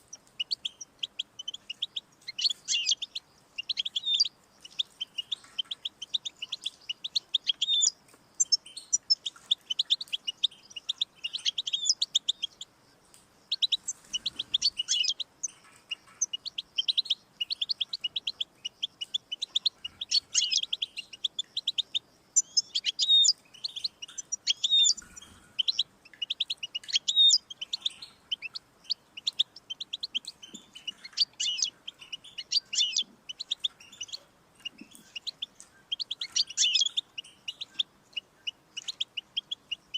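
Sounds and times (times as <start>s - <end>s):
finch singing: 0.0s - 39.9s.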